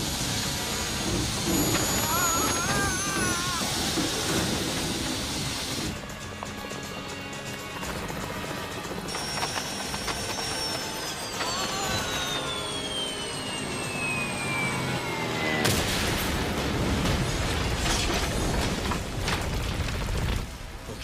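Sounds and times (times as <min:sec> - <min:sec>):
falling whistle: 0:01.5 - 0:04.1, 0:10.2 - 0:15.6.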